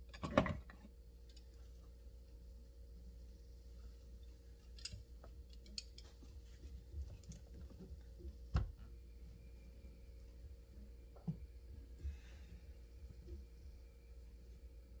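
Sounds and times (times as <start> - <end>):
clicks of hand tools and metal parts: 4.6 - 6.2.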